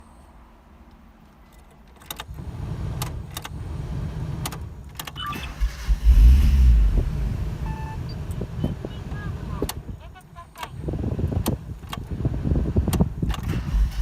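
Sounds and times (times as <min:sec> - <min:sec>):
starter cranking engine: 0:05.3 - 0:06.7, 0:12.8 - 0:14.0
low rumble: 0:05.6 - 0:10.0.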